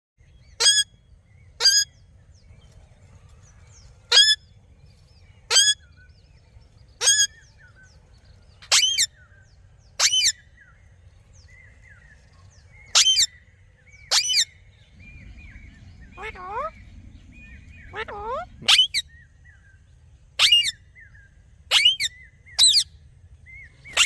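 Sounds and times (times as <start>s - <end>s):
small birds chirping: 0.2s - 24.0s
parrot harsh calls: 0.6s - 0.9s, 1.6s - 1.9s, 4.1s - 4.4s, 5.5s - 5.8s, 7.0s - 7.4s, 8.7s - 9.1s, 10.0s - 10.4s, 17.9s - 19.0s, 20.4s - 20.8s, 21.7s - 22.8s.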